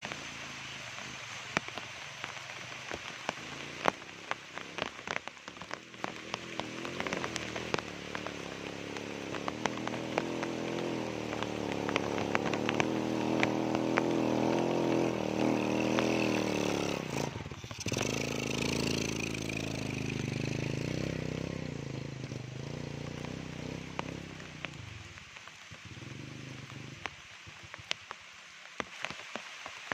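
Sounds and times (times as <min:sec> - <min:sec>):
sharp clicks and crackles: 0:00.9 - 0:29.9
motorcycle engine labouring: 0:02.3 - 0:25.0.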